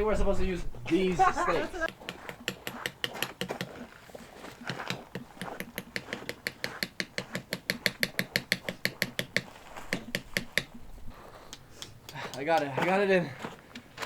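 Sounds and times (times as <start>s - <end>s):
rock hammering tent stake: 1.9s - 13.0s.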